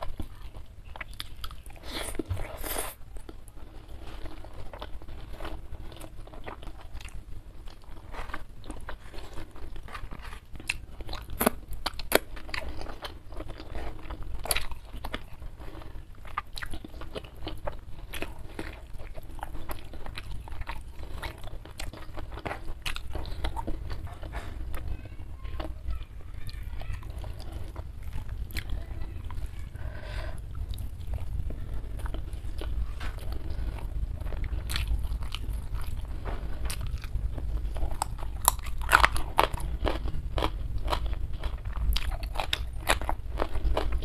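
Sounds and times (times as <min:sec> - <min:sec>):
person chewing crunchy food: 0:00.0 - 0:44.0.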